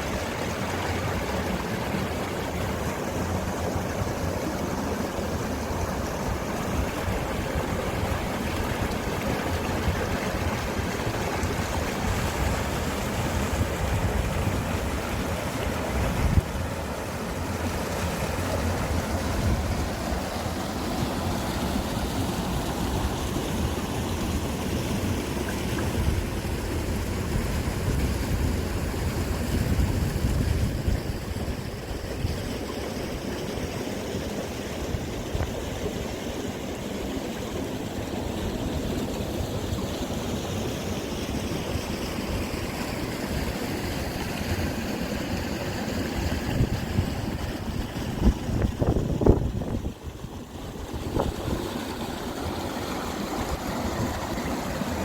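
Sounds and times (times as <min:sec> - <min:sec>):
stream water running: 0:00.0 - 0:55.0
wind rumbling on microphone: 0:06.2 - 0:16.6, 0:25.8 - 0:32.6, 0:46.2 - 0:52.2.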